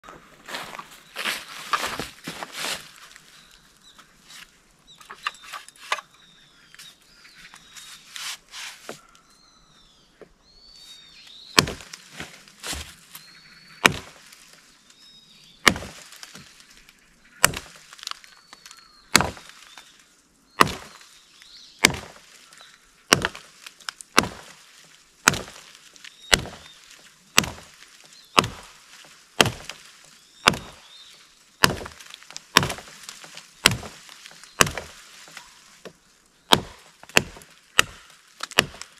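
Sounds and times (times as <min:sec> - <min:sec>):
hatchet chopping into wood: 0:11.6 - 0:12.9, 0:13.8 - 0:14.2, 0:15.6 - 0:16.4, 0:17.4 - 0:17.8, 0:19.1 - 0:19.5, 0:20.6 - 0:21.0, 0:21.8 - 0:22.2, 0:23.1 - 0:23.5, 0:24.1 - 0:24.6, 0:25.2 - 0:25.7, 0:26.3 - 0:26.8, 0:27.4 - 0:27.8, 0:28.4 - 0:28.8, 0:29.4 - 0:29.8, 0:30.4 - 0:30.8, 0:31.6 - 0:38.9.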